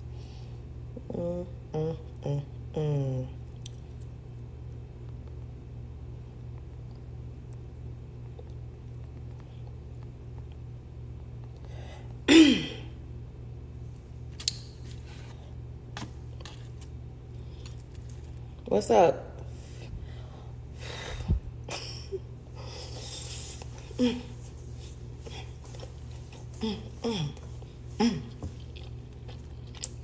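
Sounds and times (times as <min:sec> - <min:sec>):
steady low hum: 0:00.0 - 0:30.0
person humming mm: 0:01.0 - 0:03.4, 0:26.6 - 0:28.4
person sneezing or clearing throat: 0:12.3 - 0:13.0.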